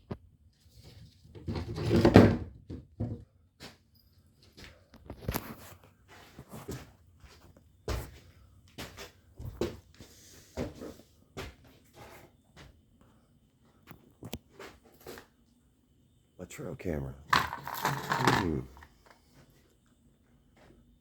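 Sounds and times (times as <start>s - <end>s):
objects being handled: 17.3s - 19.5s.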